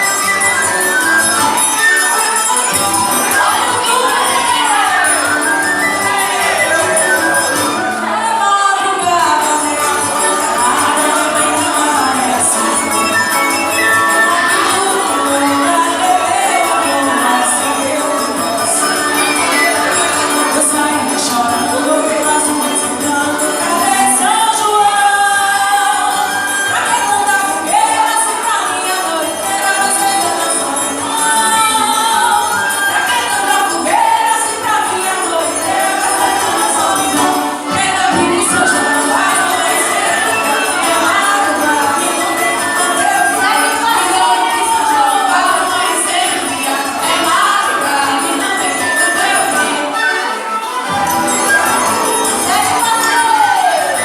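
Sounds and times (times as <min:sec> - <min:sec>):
group of voices singing: 0:00.0 - 0:54.0
instrumental accompaniment: 0:00.0 - 0:54.0
jingling hand percussion: 0:00.0 - 0:54.0.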